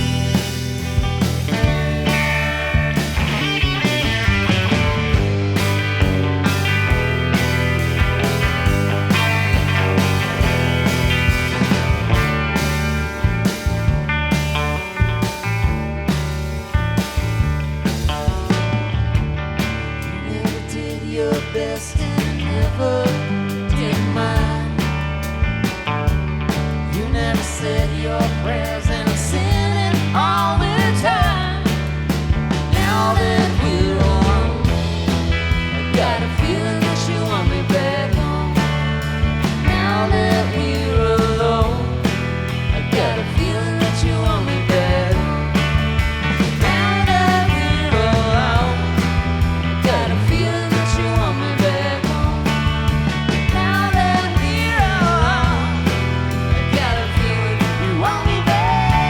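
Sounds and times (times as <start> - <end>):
bass line: 0.0 - 59.0.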